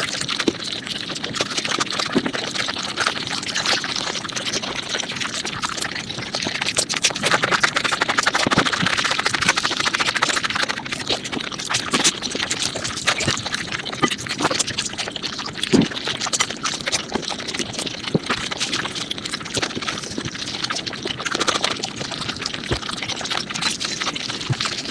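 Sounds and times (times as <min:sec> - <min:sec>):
wet chewing and smacking: 0:00.0 - 0:24.9.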